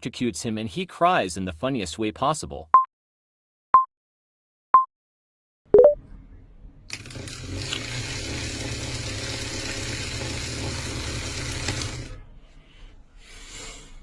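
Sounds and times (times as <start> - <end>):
small electric motor whirring: 6.9 - 12.1.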